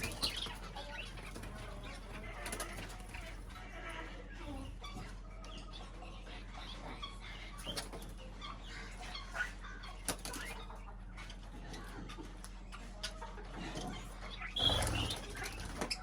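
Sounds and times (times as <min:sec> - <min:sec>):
small birds chirping: 0:00.0 - 0:16.0
wing flutters: 0:14.6 - 0:16.0.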